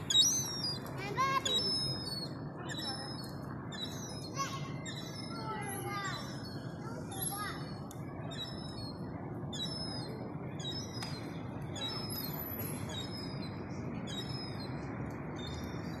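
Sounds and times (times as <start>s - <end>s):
birds chirping: 0.0s - 16.0s
traffic hum: 0.0s - 16.0s.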